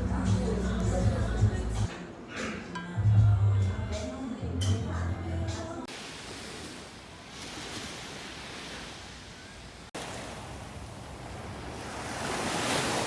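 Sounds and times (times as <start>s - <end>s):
sea waves washing ashore: 5.9s - 13.0s.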